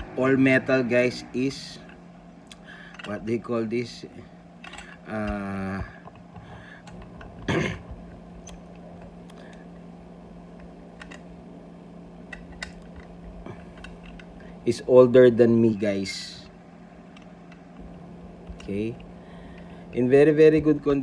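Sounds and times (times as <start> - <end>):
steady low hum: 0.0 - 21.0
man saying umm: 5.1 - 6.0.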